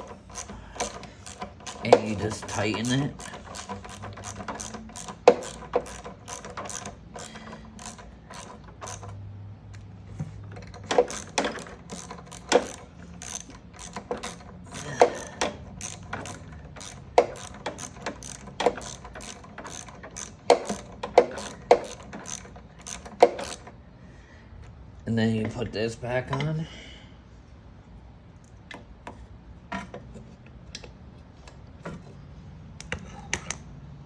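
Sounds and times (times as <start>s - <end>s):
ratchet wrench clicking: 0.0s - 9.2s, 10.8s - 23.7s.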